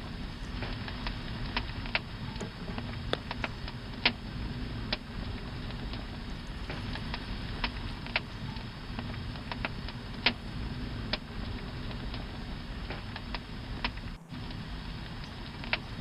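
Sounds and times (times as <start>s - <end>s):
campfire burning: 0.0s - 16.0s
burning wood popping and snapping: 0.1s - 16.0s.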